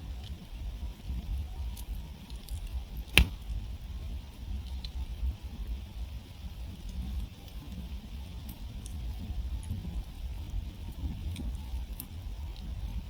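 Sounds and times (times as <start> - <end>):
campfire crackling: 0.2 - 13.0
fire popping: 1.9 - 3.7.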